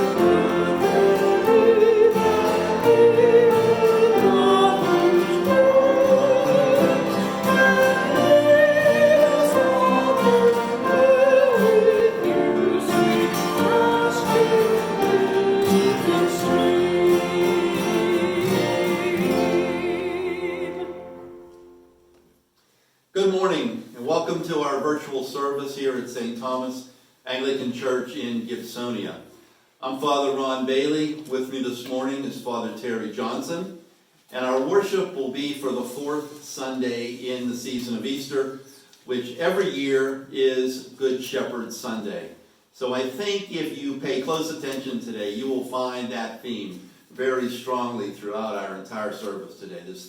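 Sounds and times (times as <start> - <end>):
voices singing sacred music: 0.0 - 21.5.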